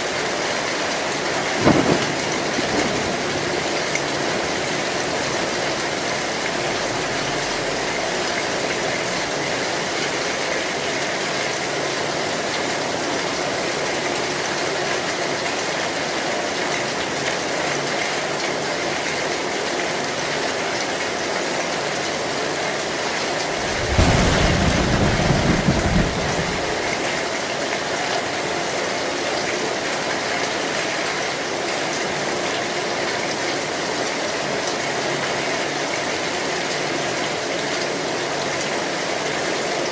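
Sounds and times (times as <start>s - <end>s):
heavy rain on a metal roof: 0.0s - 39.9s
thunder rumbling: 1.3s - 9.2s, 23.3s - 27.4s.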